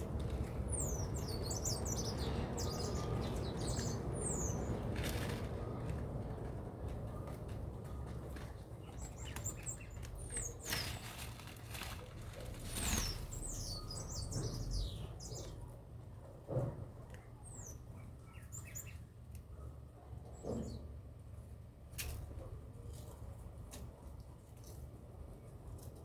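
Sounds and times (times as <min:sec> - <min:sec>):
small birds chirping: 0:00.0 - 0:06.5, 0:07.1 - 0:15.8, 0:17.1 - 0:19.7.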